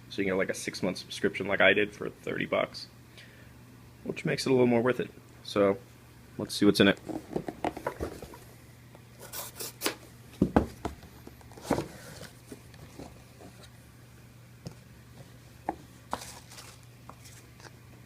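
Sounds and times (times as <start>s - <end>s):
packaging rustling: 16.1s - 17.8s.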